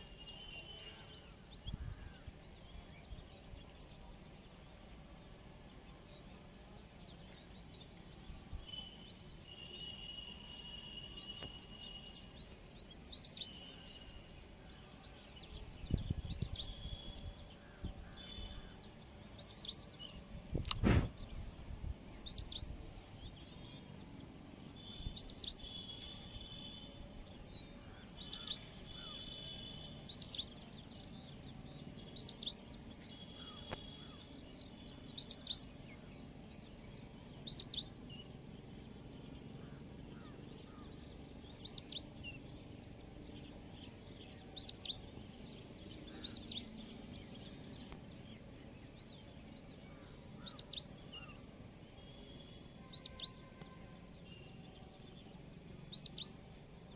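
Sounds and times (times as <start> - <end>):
songbird high-pitched call: 7.4 - 21.5, 24.7 - 31.3, 32.0 - 38.3, 39.6 - 42.7, 43.4 - 56.9.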